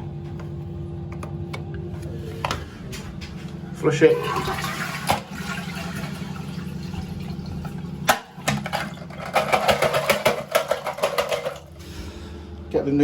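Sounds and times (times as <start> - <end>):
toilet cistern flushing: 3.8 - 11.8.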